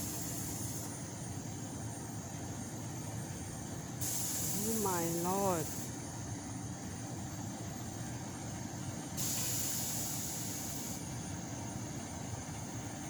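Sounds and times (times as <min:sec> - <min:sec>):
loud high hiss: 0:04.0 - 0:05.9, 0:09.2 - 0:11.1.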